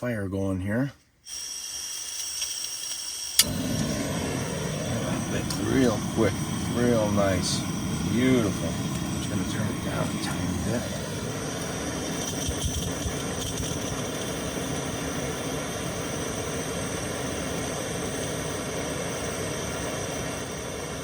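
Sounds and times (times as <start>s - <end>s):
gas stove burner hissing: 1.2s - 21.0s.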